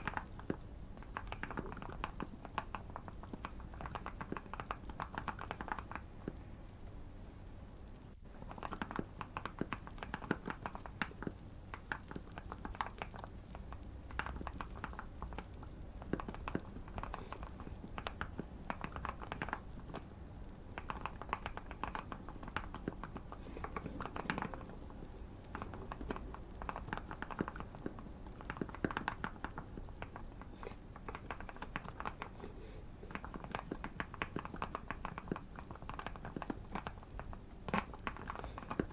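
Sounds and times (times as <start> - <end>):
typing on mechanical keyboard: 0.0 - 6.4, 8.3 - 30.4, 31.0 - 32.4, 33.1 - 38.9.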